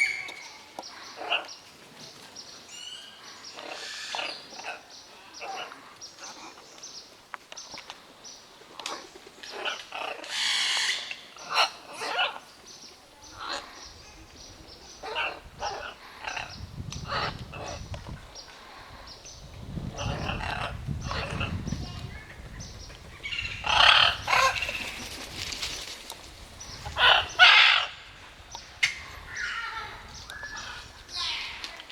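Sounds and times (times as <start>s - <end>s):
parrots squawking: 9.5s - 12.4s.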